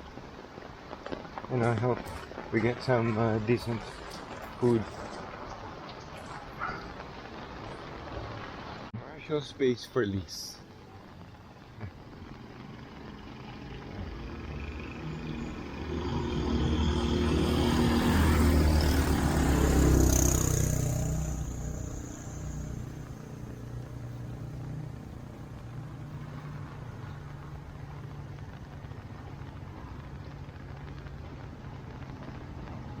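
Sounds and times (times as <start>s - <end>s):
low traffic hum: 0.0s - 33.0s
vehicle passing by: 12.6s - 27.8s.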